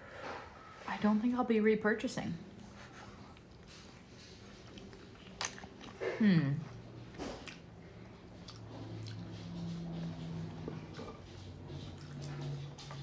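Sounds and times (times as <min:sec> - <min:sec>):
chewing: 0:02.6 - 0:13.0.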